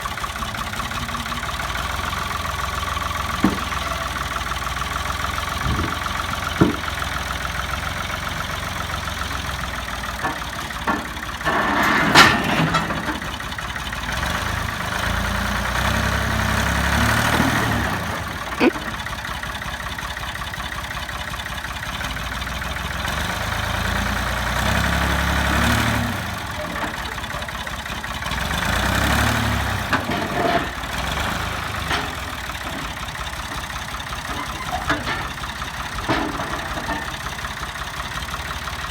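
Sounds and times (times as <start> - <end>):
backhoe engine revving: 0.0 - 38.9
metal clanks: 5.6 - 7.4, 10.0 - 13.8, 29.9 - 31.0, 34.2 - 37.4.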